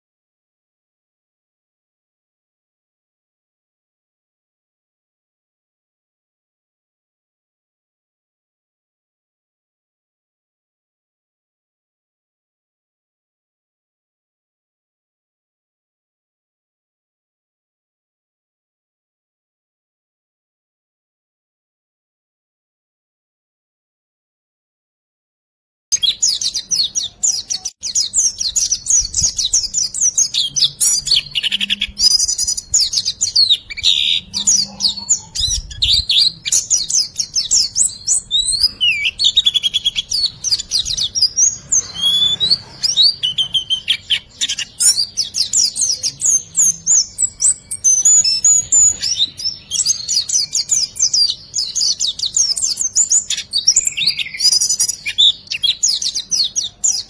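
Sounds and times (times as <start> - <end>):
songbird chirps and trills: 25.9 - 57.0.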